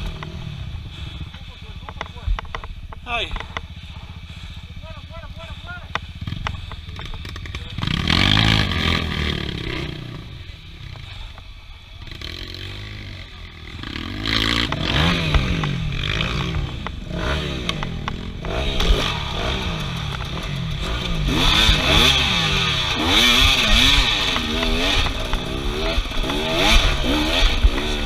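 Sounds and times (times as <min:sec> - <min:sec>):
off-road vehicle engines revving: 0:00.0 - 0:28.0
rattling and scraping on rough ground: 0:00.0 - 0:28.0.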